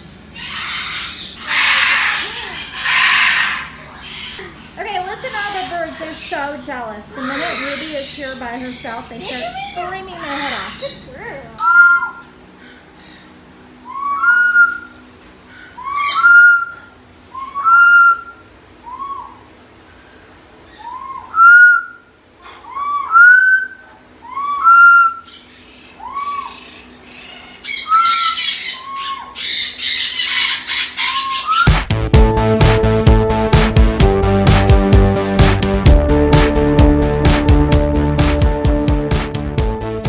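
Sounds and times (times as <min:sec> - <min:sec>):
parrots screaming two-note call: 0:00.4 - 0:04.4, 0:07.2 - 0:11.0, 0:11.6 - 0:12.3, 0:13.9 - 0:15.0, 0:15.7 - 0:19.5, 0:20.7 - 0:31.8
harsh parrot screeching: 0:00.4 - 0:13.3, 0:13.9 - 0:19.5, 0:20.6 - 0:31.8.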